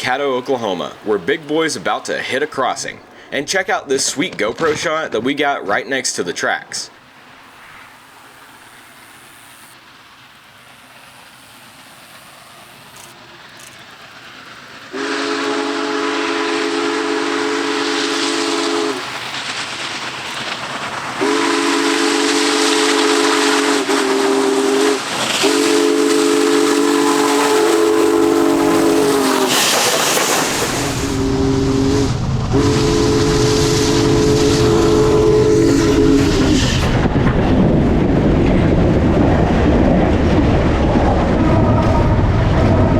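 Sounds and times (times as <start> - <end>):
locomotive rumble: 0.0 - 42.9
steam whistle chord blasts: 14.9 - 19.1, 21.2 - 29.8, 30.8 - 36.9.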